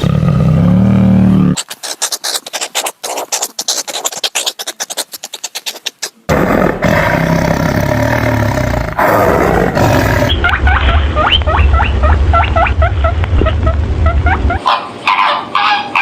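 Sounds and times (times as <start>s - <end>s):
animal roaring: 0.0s - 1.6s, 6.3s - 10.4s
steady low rumble: 8.9s - 14.6s.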